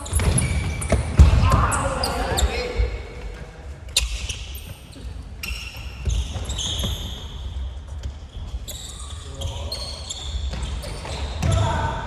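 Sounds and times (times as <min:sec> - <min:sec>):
ball kicked and bouncing: 0:00.0 - 0:01.8
sneakers squeaking on court: 0:00.0 - 0:12.0.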